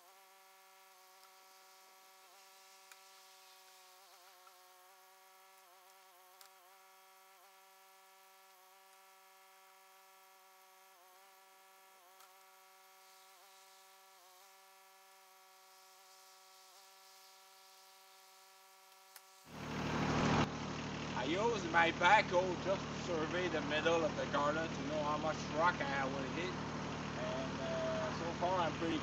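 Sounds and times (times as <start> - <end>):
faint buzzing hum: 0.0 - 20.5.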